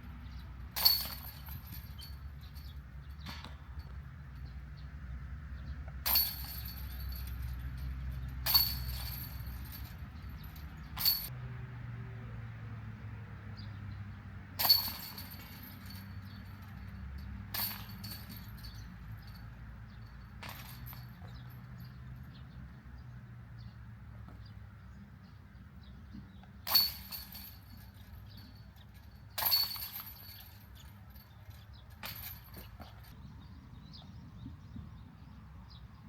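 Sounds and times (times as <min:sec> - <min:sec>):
disc golf putts hitting basket chains: 0:00.3 - 0:04.0, 0:05.9 - 0:11.3, 0:14.6 - 0:22.5, 0:25.8 - 0:33.2.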